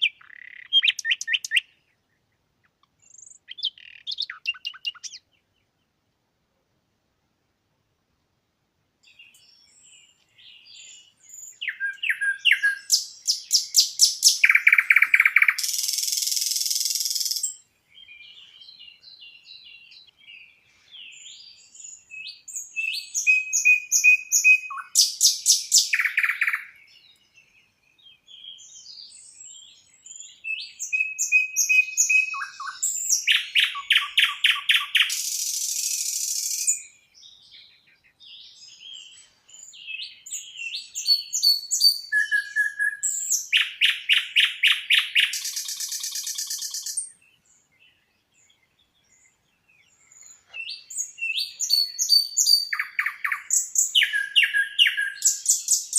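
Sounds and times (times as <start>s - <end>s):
songbird singing rapid notes: 0.0s - 6.1s, 9.0s - 55.9s
faint chirps of other birds: 0.0s - 7.3s, 7.9s - 55.9s.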